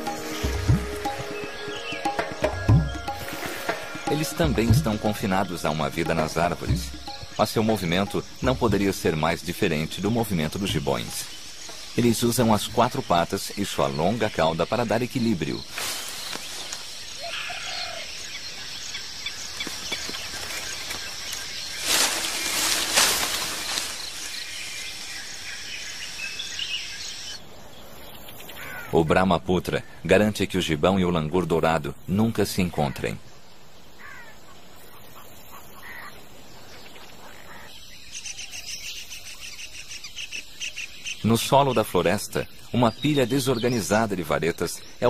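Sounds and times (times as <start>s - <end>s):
bird chirps: 0.0s - 29.0s, 33.2s - 45.0s
insect drone: 0.0s - 29.0s.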